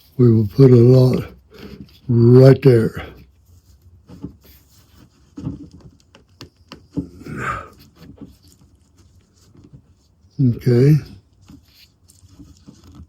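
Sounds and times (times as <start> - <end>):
cord and burlap rustling: 0.0 - 13.0
breathy sound: 7.0 - 7.8.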